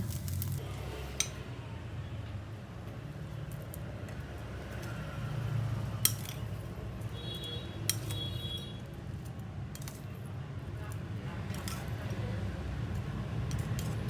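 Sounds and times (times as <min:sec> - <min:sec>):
utensils clinking against a pan: 0:06.0 - 0:12.2, 0:12.9 - 0:14.0.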